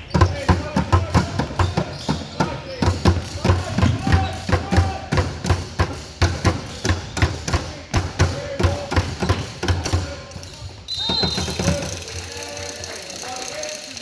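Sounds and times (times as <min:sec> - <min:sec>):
sneaker squeaks: 0:00.0 - 0:05.0, 0:08.7 - 0:12.0
basketball dribbling on gym floor: 0:00.0 - 0:11.9.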